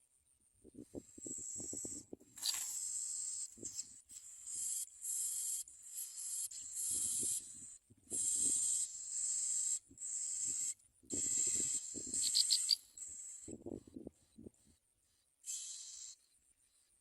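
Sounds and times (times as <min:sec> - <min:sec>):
nestlings begging with hissing calls: 0:01.2 - 0:13.5, 0:15.4 - 0:16.2.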